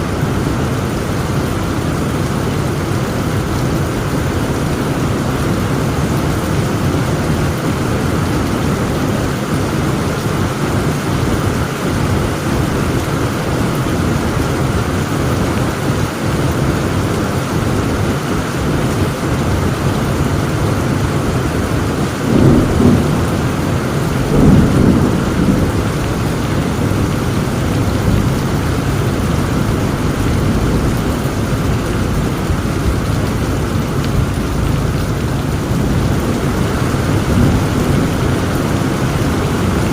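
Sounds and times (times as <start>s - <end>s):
heavy rain falling: 0.0s - 39.9s
thunder claps: 21.6s - 39.9s.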